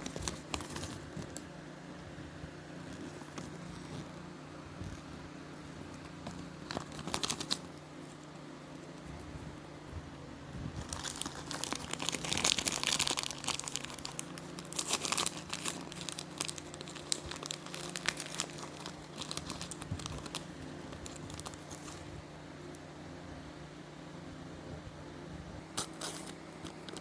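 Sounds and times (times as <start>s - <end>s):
plastic wrapping crinkling and tearing: 0.0s - 1.4s, 6.0s - 8.1s, 10.7s - 22.2s, 25.8s - 27.0s.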